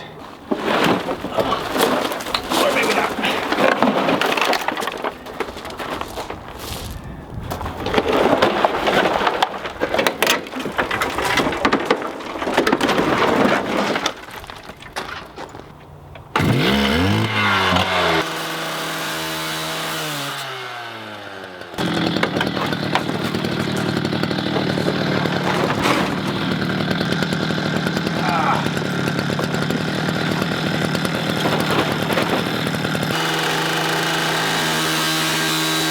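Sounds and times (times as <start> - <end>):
metal cracking and clanking: 0.0 - 6.6, 7.5 - 16.5, 21.8 - 33.2
power saw cutting metal: 16.3 - 35.9.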